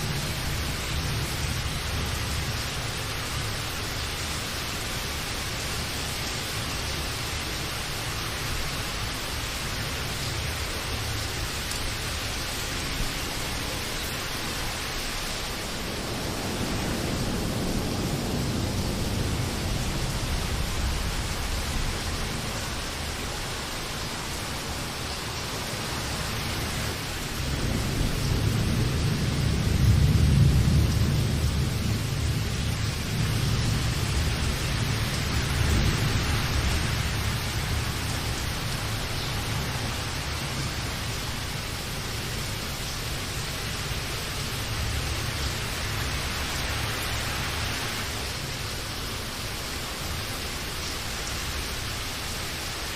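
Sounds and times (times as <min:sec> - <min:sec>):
rain hissing: 0:00.0 - 0:52.9
thunder rumbling: 0:12.0 - 0:25.5, 0:26.1 - 0:48.6.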